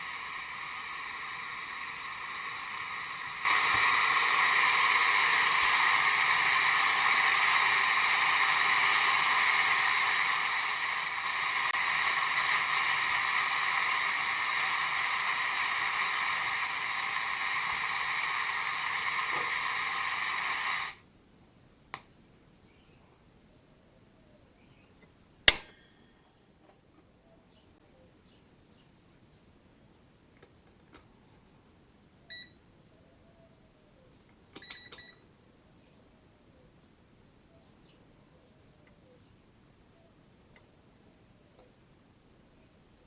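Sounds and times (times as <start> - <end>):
steady hissing: 0.0 - 21.0.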